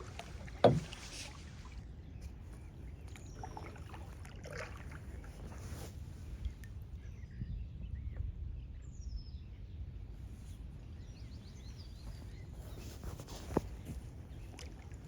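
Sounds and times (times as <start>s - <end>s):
birds chirping: 10.8s - 15.0s.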